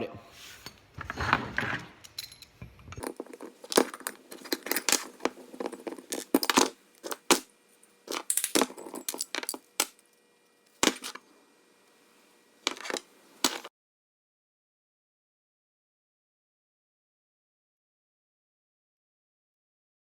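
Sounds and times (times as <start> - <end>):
metal parts and tools clinking: 0.6 - 11.3, 12.6 - 13.7.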